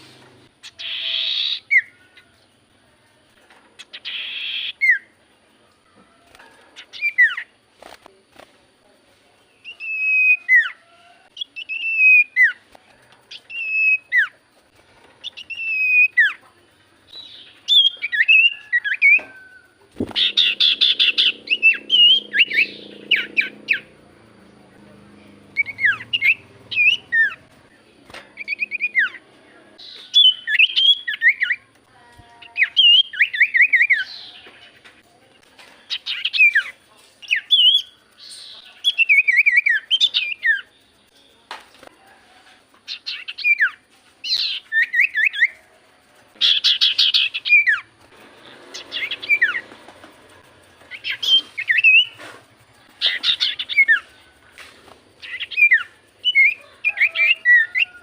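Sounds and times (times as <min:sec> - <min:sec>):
bird whistled song: 0:00.6 - 0:02.2, 0:03.8 - 0:05.1, 0:06.8 - 0:07.5, 0:09.6 - 0:10.8, 0:11.4 - 0:12.7, 0:13.3 - 0:14.4, 0:15.2 - 0:16.4, 0:17.1 - 0:23.9, 0:25.5 - 0:27.5, 0:28.4 - 0:29.2, 0:29.8 - 0:31.6, 0:32.5 - 0:34.5, 0:35.9 - 0:40.8, 0:42.9 - 0:45.6, 0:46.4 - 0:47.9, 0:48.7 - 0:49.7, 0:50.9 - 0:52.2, 0:53.0 - 0:54.2, 0:55.2 - 0:58.0.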